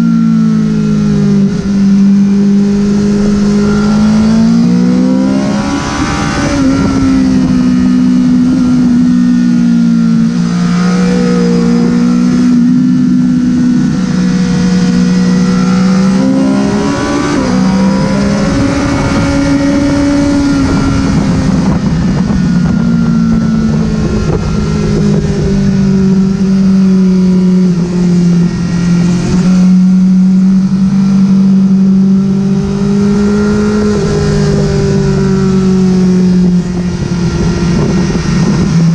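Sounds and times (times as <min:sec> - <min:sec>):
motorcycle engine revving hard: 0:00.0 - 0:38.9.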